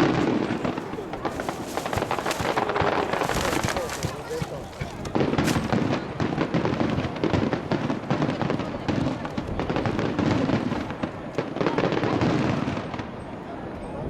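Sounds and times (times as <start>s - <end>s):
fireworks bursting: 0.0s - 8.0s.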